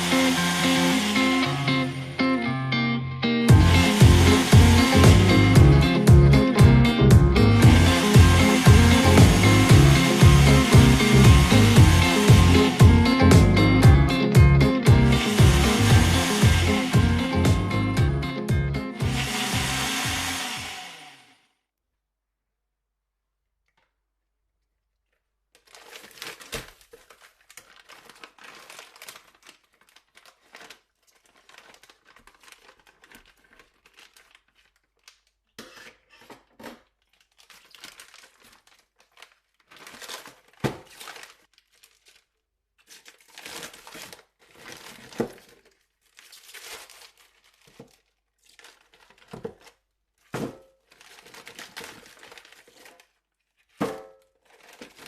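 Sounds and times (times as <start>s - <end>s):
plastic bag crinkling: 25.1s - 35.5s, 36.8s - 55.0s.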